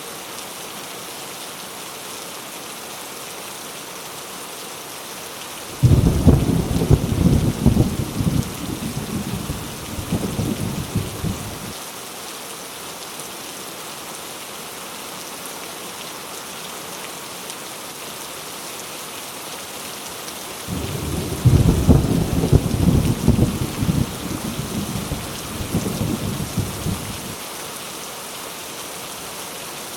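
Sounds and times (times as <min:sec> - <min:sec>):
heavy rain: 0:00.0 - 0:29.9
thunder rumbling: 0:05.8 - 0:11.7, 0:20.7 - 0:27.4.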